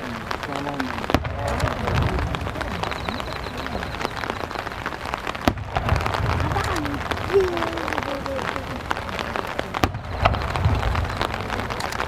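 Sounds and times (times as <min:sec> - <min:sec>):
faint crowd voices: 0:00.0 - 0:12.0
low rumble of fireworks: 0:00.0 - 0:12.0
rain pattering: 0:00.0 - 0:12.0
sharp clicks: 0:09.8 - 0:12.0.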